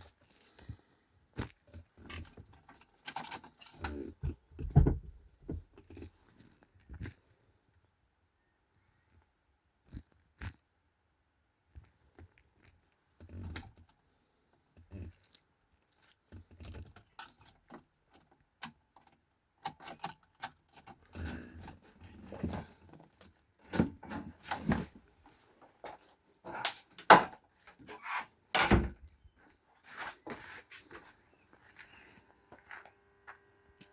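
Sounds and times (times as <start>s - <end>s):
metallic jingling: 2.1s - 4.8s.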